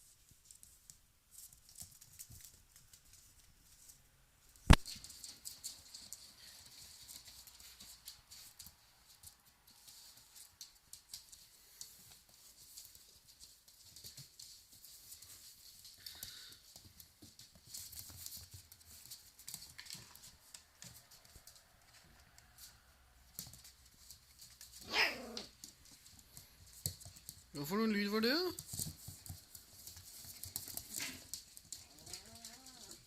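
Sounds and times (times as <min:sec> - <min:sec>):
puppy paws clicking and tapping: 0:00.0 - 0:33.0.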